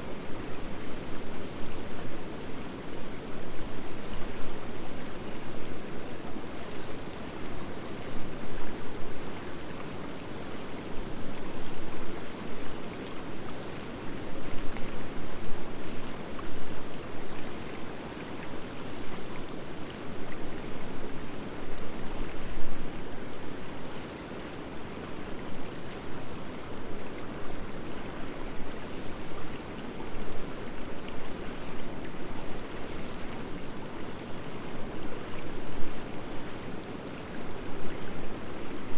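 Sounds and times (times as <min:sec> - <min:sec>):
faint fire crackles: 0:00.0 - 0:38.9.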